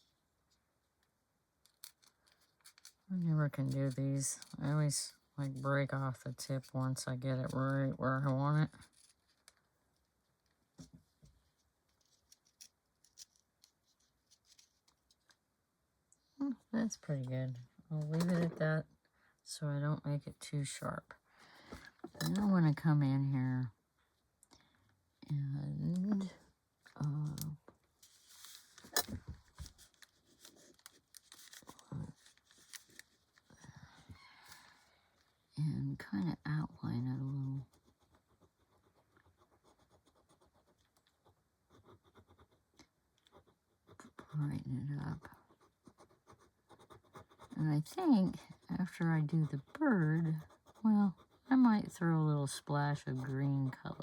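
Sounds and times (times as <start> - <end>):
pencil scratching on paper: 36.1 - 52.2, 52.9 - 54.0.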